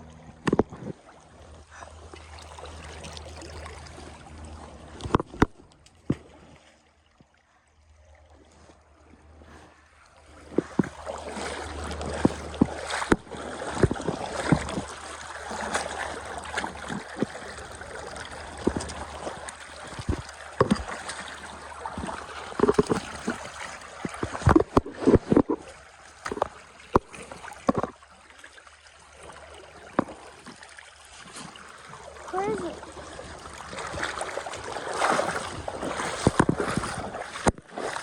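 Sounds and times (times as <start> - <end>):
water splashing in river: 0.0 - 38.0.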